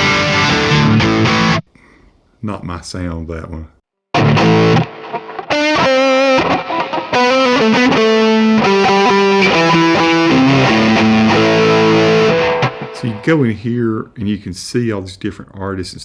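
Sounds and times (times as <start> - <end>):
distorted electric guitar: 0.0 - 1.6, 4.2 - 13.3.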